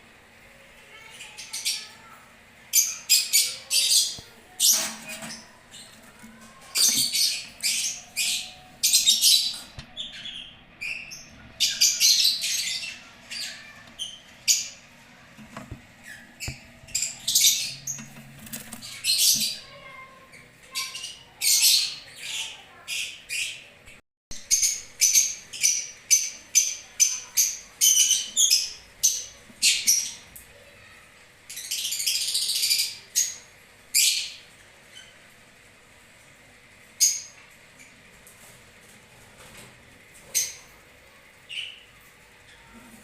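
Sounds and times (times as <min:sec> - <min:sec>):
lovebirds chirping and screeching: 0:02.7 - 0:23.8, 0:24.5 - 0:30.9.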